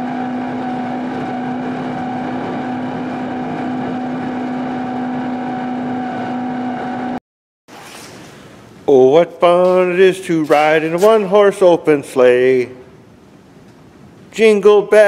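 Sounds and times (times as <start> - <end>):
heavy equipment engine droning: 0.0 - 7.2.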